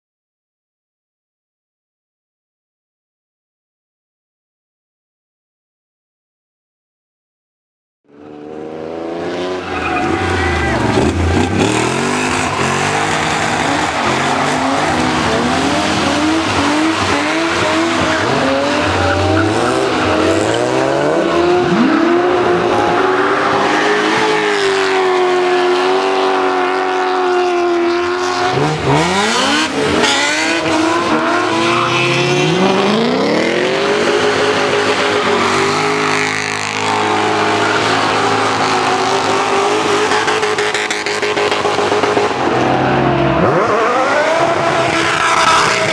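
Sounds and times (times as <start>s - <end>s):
car engine revving hard: 8.4s - 45.9s
tyre squeal: 9.6s - 20.9s.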